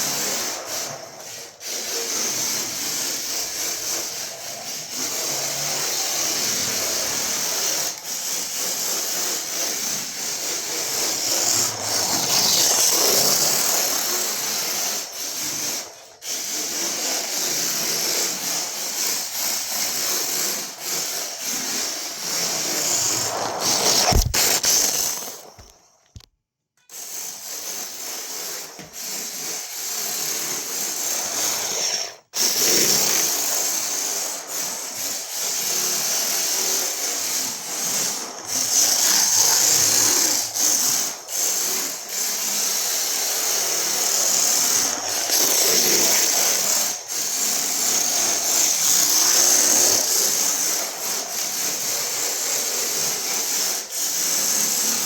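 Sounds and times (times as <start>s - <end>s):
rough scraping: 9.9s - 14.2s, 22.2s - 26.3s.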